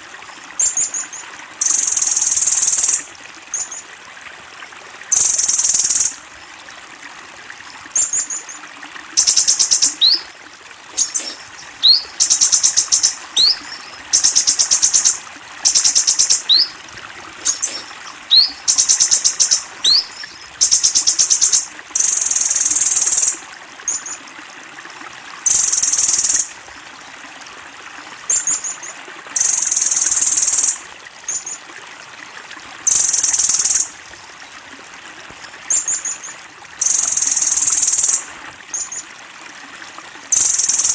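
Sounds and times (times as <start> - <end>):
faint steady hiss: 0.0 - 24.3
sunbird singing high trills: 9.2 - 10.3, 11.0 - 16.7, 17.4 - 23.3.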